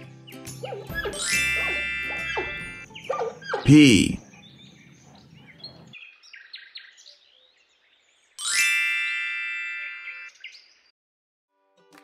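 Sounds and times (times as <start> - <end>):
faint bird chirps: 0.6 - 8.3
bright chime-like tone: 1.2 - 2.8.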